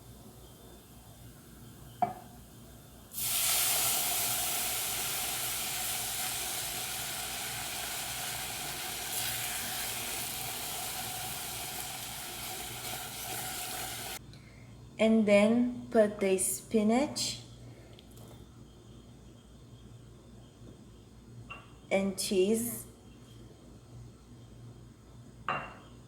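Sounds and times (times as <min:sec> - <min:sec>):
pan sizzling: 0:03.1 - 0:14.2.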